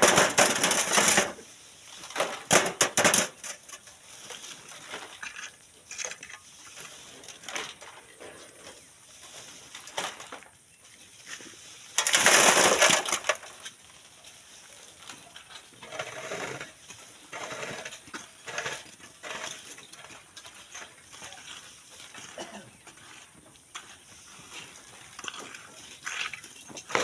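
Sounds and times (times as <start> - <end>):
shovel scraping sand and stones: 0.0 - 27.0
rush of sand and gravel: 20.6 - 27.0.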